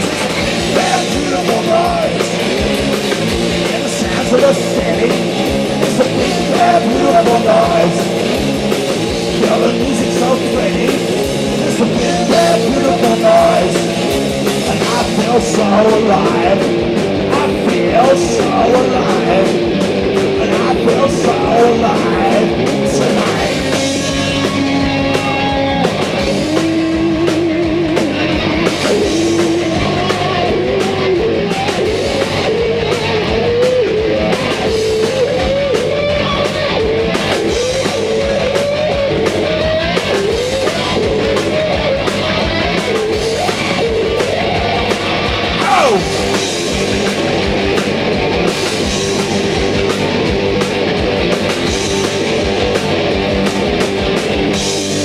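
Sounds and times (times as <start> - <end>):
bass guitar: 0.0 - 55.0
drums: 0.0 - 55.0
lead electric guitar bending notes: 0.0 - 55.0.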